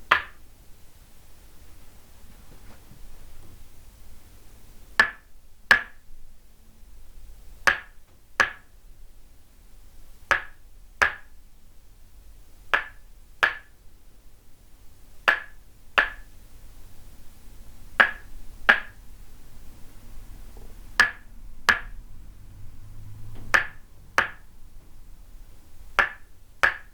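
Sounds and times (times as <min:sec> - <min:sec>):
wooden mallet striking wooden stake: 0:00.1 - 0:00.4, 0:05.0 - 0:06.0, 0:07.7 - 0:08.7, 0:10.3 - 0:11.3, 0:12.7 - 0:13.7, 0:15.3 - 0:16.3, 0:18.0 - 0:19.0, 0:21.0 - 0:21.9, 0:23.5 - 0:24.4, 0:26.0 - 0:26.9.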